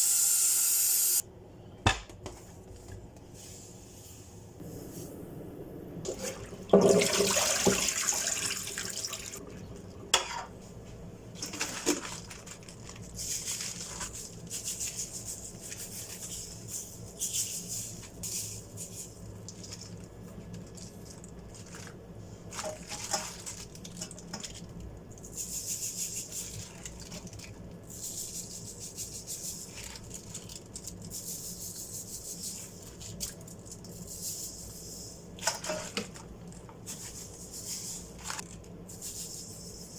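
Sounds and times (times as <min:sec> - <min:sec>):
tap water running into sink: 0:06.1 - 0:09.4
knocks of things in sink: 0:06.7 - 0:08.0.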